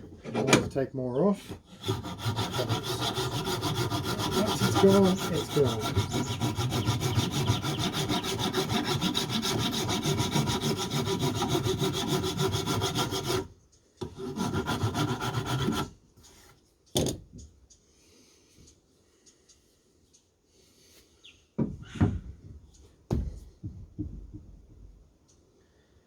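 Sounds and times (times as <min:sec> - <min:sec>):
rasp filing wooden handle: 0:00.2 - 0:00.7, 0:01.5 - 0:16.4.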